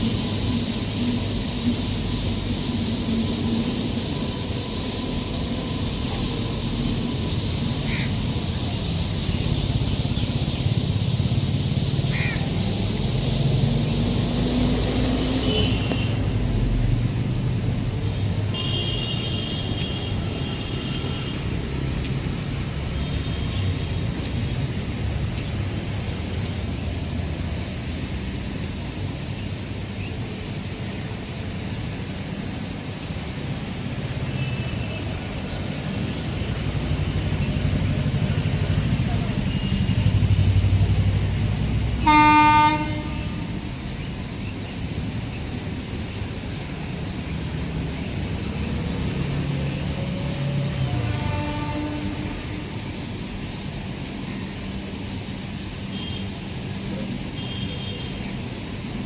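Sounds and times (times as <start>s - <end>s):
train rumbling: 0.0s - 59.0s
train horn blast: 18.5s - 21.8s, 41.9s - 43.8s, 50.2s - 53.0s.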